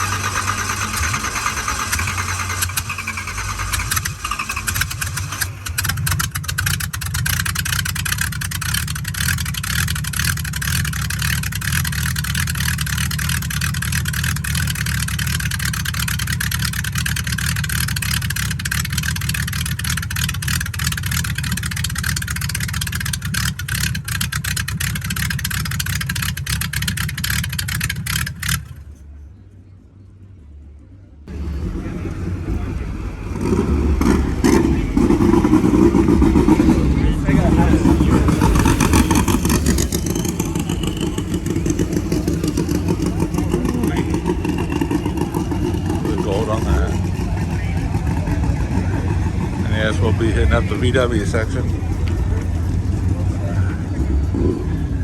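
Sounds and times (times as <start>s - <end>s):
car engine running: 0.0s - 55.0s.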